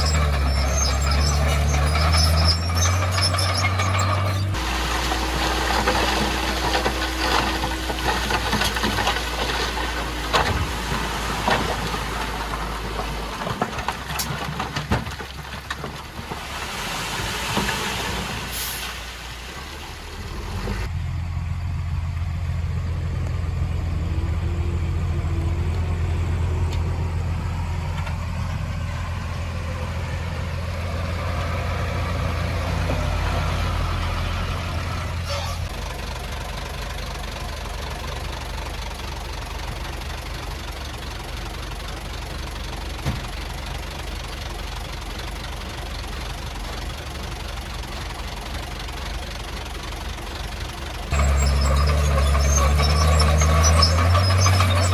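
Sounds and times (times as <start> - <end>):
tracks and blade clanking: 0.0 - 10.6
bulldozer diesel engine: 0.0 - 54.9.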